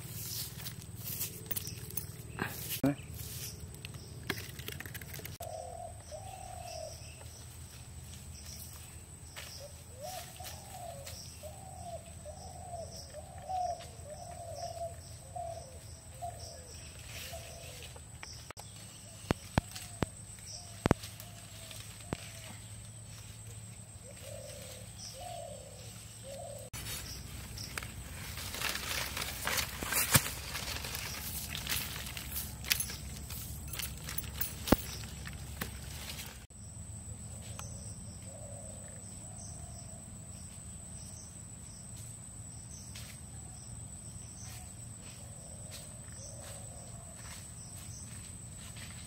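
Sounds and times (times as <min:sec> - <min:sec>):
bird calling: 0:05.1 - 0:07.3, 0:24.0 - 0:36.5.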